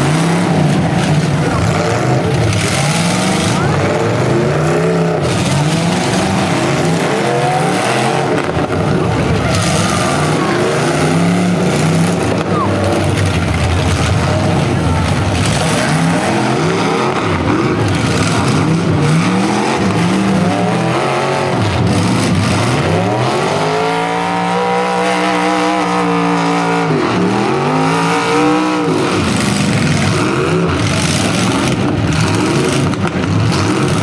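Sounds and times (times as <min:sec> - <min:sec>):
car engine revving: 0:00.0 - 0:34.0
din of running engines: 0:00.0 - 0:34.0.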